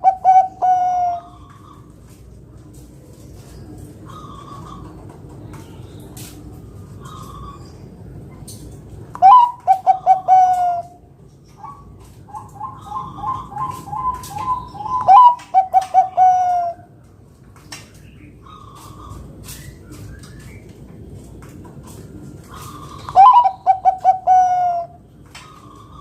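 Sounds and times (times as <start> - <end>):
dove rapid staccato cooing: 9.2 - 11.0, 11.6 - 16.8, 22.5 - 26.0.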